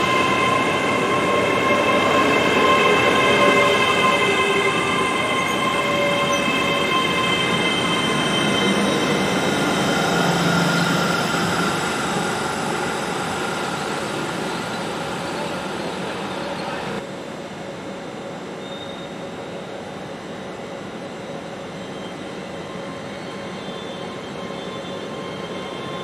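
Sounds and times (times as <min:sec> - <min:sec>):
wheels ringing on rails: 0:00.0 - 0:17.0
train passing: 0:00.0 - 0:17.1.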